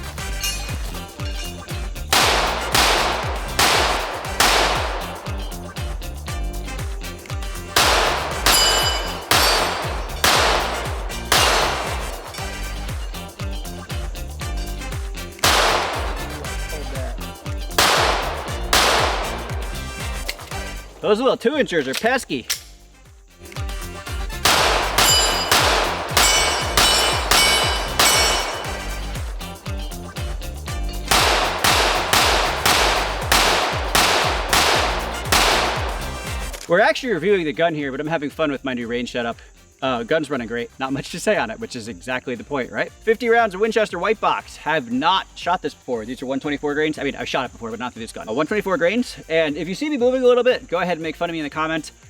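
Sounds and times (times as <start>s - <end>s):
background music with beat: 0.0s - 21.4s, 22.3s - 37.4s
steel targets ringing: 0.3s - 1.6s, 2.2s - 5.7s, 7.8s - 13.4s, 15.4s - 21.2s, 24.5s - 29.6s, 31.0s - 36.6s
pistol shots: 2.1s - 6.0s, 7.7s - 13.4s, 15.4s - 21.1s, 24.4s - 29.7s, 31.1s - 36.7s.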